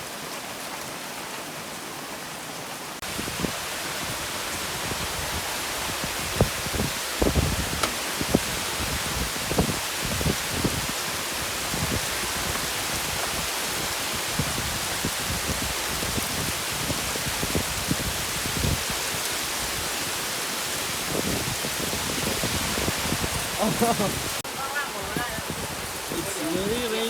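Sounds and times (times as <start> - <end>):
heavy rain pouring: 0.0 - 27.0
water drops knocking: 7.7 - 8.4.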